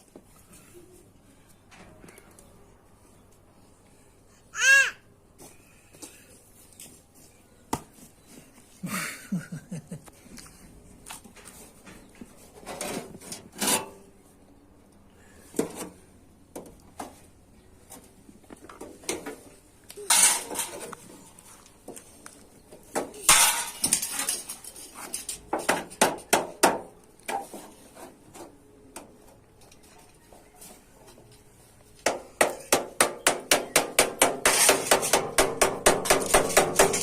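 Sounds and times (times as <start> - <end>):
metal scraping: 34.4 - 35.2.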